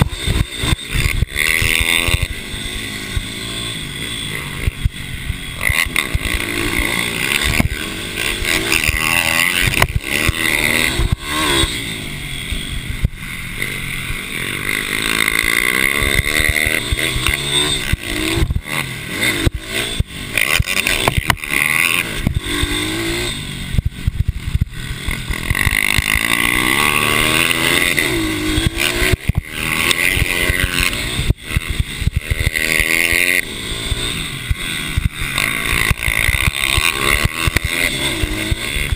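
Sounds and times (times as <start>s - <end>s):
racing motorcycle engines revving: 0.0s - 38.9s.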